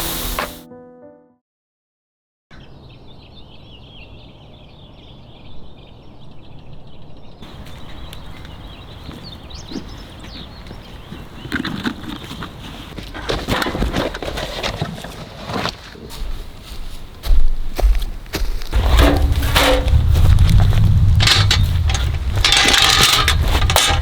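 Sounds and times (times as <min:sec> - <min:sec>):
small birds chirping: 0:02.5 - 0:13.2
low steady rumble: 0:18.7 - 0:24.0
sharp clicks and knocks: 0:18.7 - 0:24.0.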